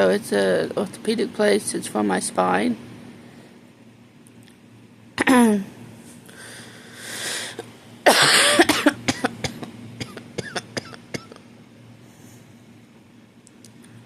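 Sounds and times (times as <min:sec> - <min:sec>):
person breathing in: 0:06.3 - 0:07.7
person coughing: 0:08.0 - 0:11.4.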